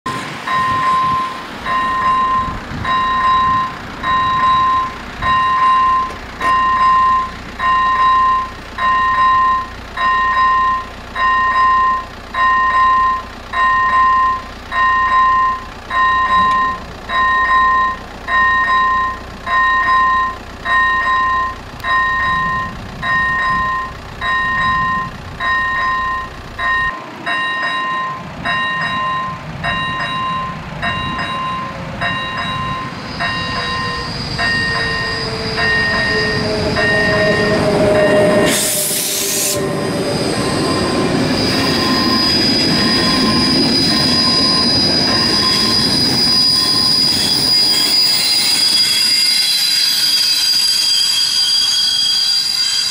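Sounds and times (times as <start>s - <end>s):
passenger train rumble: 0.0s - 52.9s
high wheel squeal: 0.1s - 52.9s
level crossing bell dinging: 0.5s - 37.1s
loud rushing noise: 32.6s - 46.0s.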